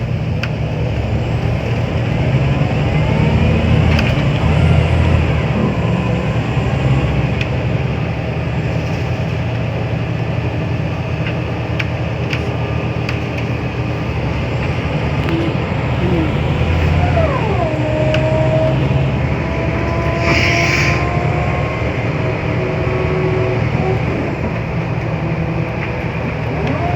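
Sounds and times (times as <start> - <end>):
bus diesel engine running: 0.0 - 26.9
rattles and clicks: 8.7 - 26.9
whine dropping in pitch: 14.1 - 26.9.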